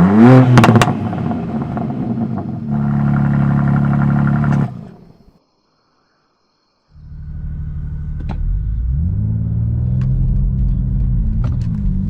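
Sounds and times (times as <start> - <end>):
car exhaust revving and crackling: 0.0 - 5.0, 7.0 - 12.0.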